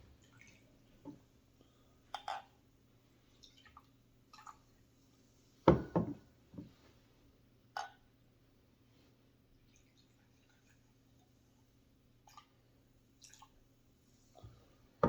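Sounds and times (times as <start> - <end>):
bottle and cups knocking on table: 5.7 - 6.7
soda pouring into cups: 13.2 - 13.6.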